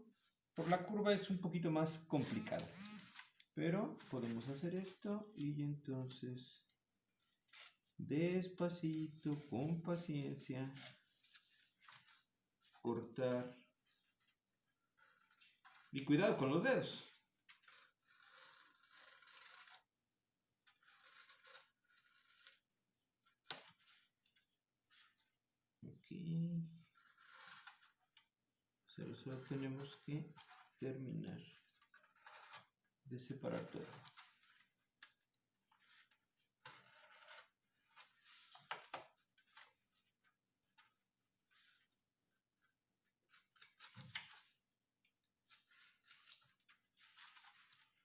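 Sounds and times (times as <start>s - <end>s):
blade scraping sheet material: 0.6s - 5.4s, 33.4s - 34.7s
blade cutting sheet material: 2.2s - 3.4s.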